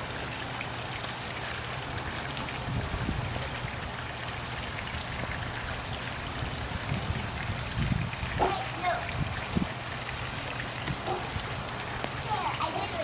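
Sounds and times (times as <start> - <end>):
wind blowing across microphone: 2.5 - 4.0, 4.9 - 11.6.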